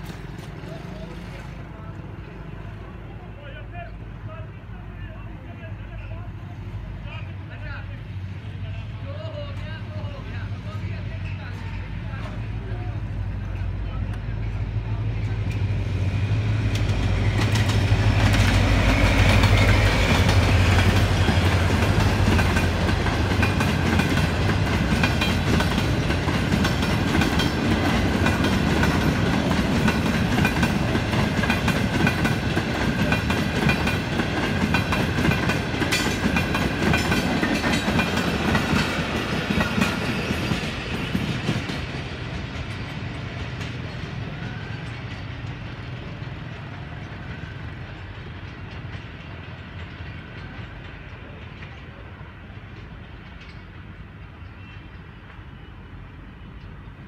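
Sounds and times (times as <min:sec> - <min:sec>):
diesel locomotive engine: 0:00.0 - 0:57.0
train wheels clickety-clack: 0:13.3 - 0:55.7.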